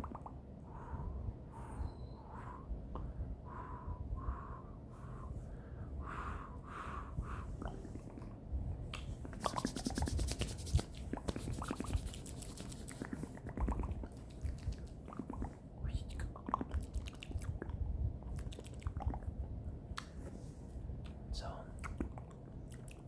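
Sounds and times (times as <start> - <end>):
wet mouth clicks: 0.0 - 0.4, 8.9 - 19.3, 21.0 - 23.0
wet mouth noises: 0.0 - 0.4, 7.2 - 20.2, 21.0 - 23.0.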